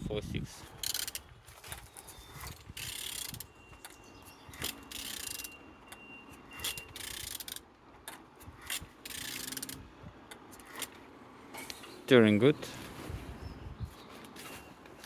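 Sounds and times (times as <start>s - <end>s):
wrench ratcheting: 0.8s - 1.3s, 2.4s - 3.5s, 4.5s - 5.6s, 6.6s - 7.6s, 8.6s - 10.9s.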